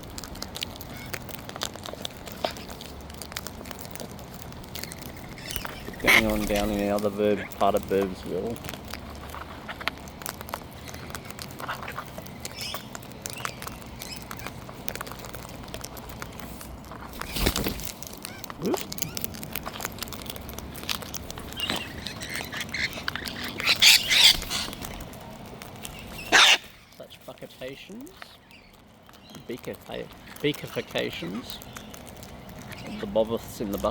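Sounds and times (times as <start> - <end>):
cockatoos squawking: 0.8 - 8.5, 18.2 - 27.0.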